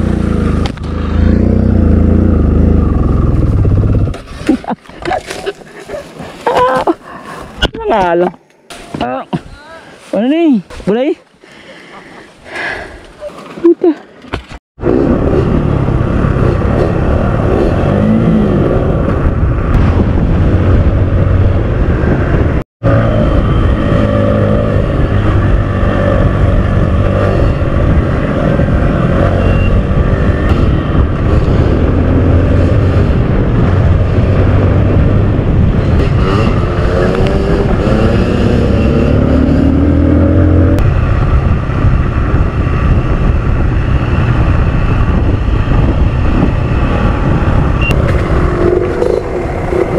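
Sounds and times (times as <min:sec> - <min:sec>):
dirt bike engine revving: 0:22.8 - 0:41.5.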